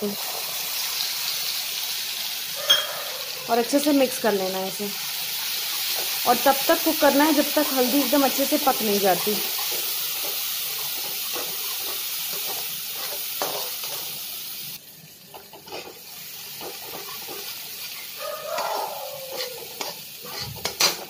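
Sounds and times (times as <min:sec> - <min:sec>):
paste sizzling in hot oil: 0:00.0 - 0:21.0
metal spatula scraping pan: 0:08.6 - 0:14.1, 0:15.4 - 0:16.0, 0:16.6 - 0:21.0.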